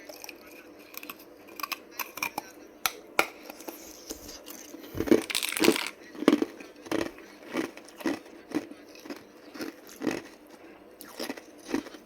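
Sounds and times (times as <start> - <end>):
ice crunching in mouth: 5.0 - 10.4, 11.0 - 12.0.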